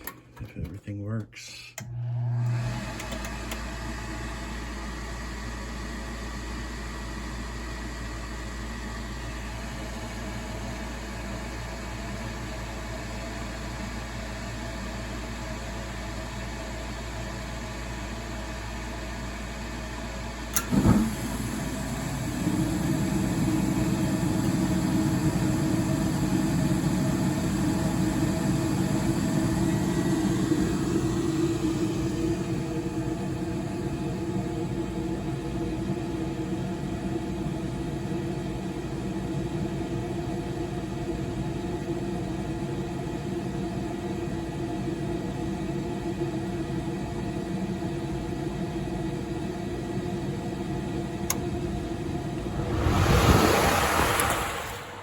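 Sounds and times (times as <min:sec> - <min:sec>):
furnace inducer motor humming: 0:01.8 - 0:13.6, 0:16.8 - 0:55.0
burners rumbling: 0:51.2 - 0:55.0.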